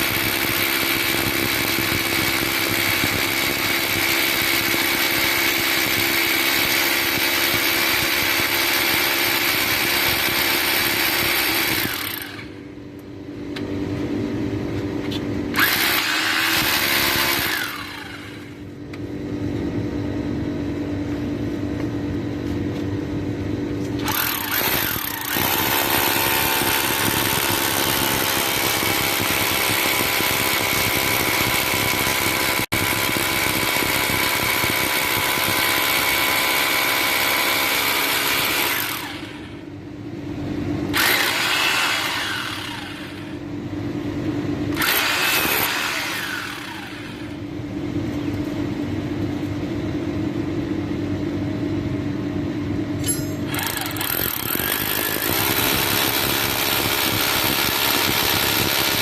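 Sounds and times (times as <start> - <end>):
small electric motor whining: 41.0 - 43.4, 44.8 - 47.4, 53.5 - 59.0.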